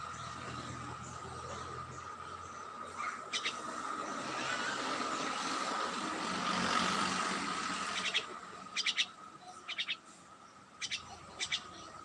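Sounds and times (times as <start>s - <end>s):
bird chirping rapidly: 2.4s - 4.3s, 7.9s - 10.0s, 10.6s - 11.9s.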